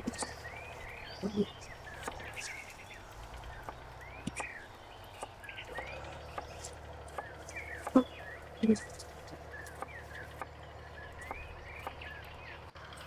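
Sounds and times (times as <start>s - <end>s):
birds chirping: 0.0s - 13.0s
sharp clicks: 3.3s - 8.0s.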